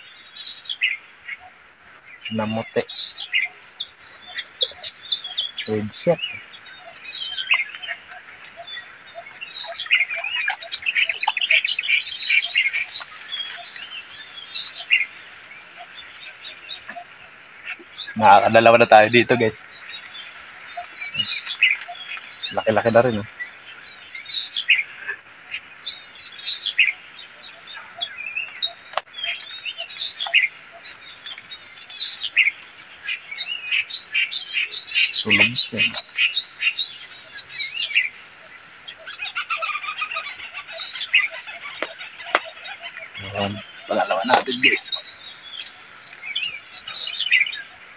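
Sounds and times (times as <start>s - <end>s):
bird trills: 0.0s - 47.9s
birds chirping and singing: 0.0s - 47.9s.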